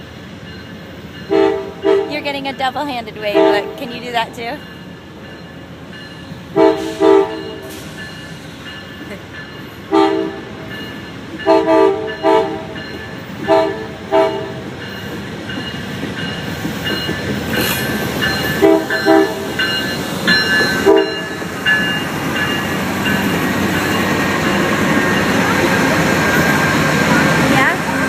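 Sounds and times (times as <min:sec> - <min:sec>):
train rumble: 0:00.0 - 0:28.0
train air horn blasts: 0:01.3 - 0:02.2, 0:06.5 - 0:07.9, 0:09.9 - 0:10.6, 0:11.4 - 0:12.8, 0:13.4 - 0:14.6, 0:18.6 - 0:19.5, 0:20.8 - 0:21.2.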